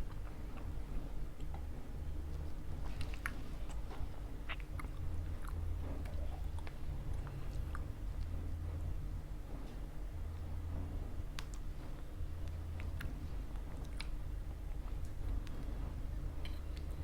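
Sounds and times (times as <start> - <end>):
mouth clicks and smacks: 0.0 - 8.4
chewing pizza: 0.0 - 17.0
steady low hum: 0.0 - 17.0.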